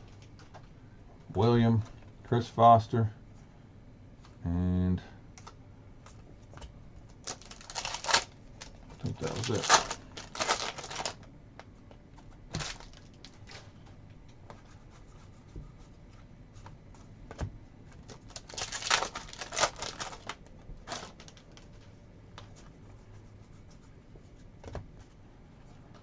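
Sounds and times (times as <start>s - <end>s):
wrappers rustling and crinkling: 7.1s - 11.2s, 12.5s - 13.8s, 18.0s - 21.9s.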